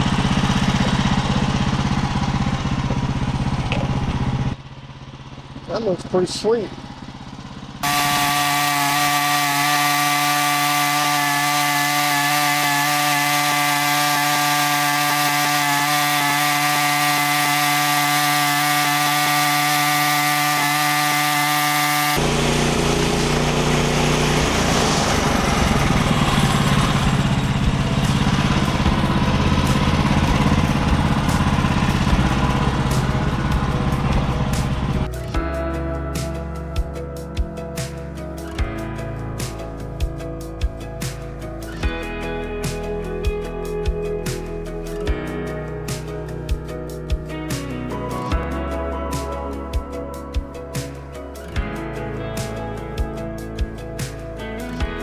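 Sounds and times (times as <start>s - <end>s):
sawmill engine humming: 0.0s - 35.4s
band saw cutting log: 7.8s - 35.2s.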